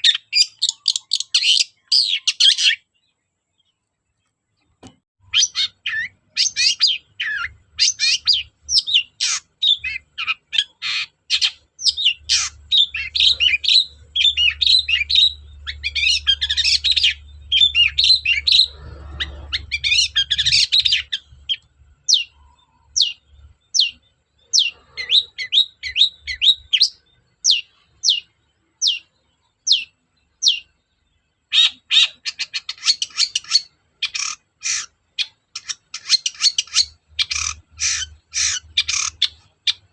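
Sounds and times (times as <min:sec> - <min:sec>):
shrike singing: 0:05.2 - 0:30.7.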